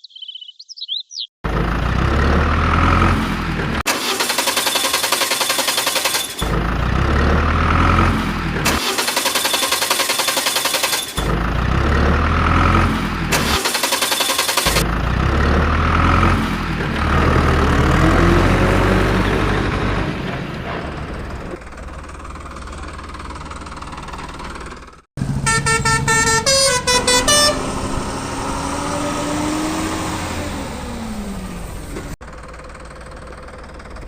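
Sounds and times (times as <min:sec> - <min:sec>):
motor vehicle engine running: 0:01.4 - 0:34.0
horn tooting: 0:25.2 - 0:29.6.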